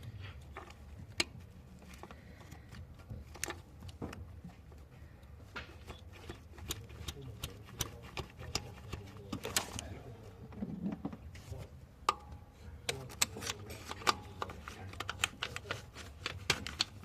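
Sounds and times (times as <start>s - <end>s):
hand tools clicking and knocking: 5.5s - 9.8s, 12.1s - 17.0s.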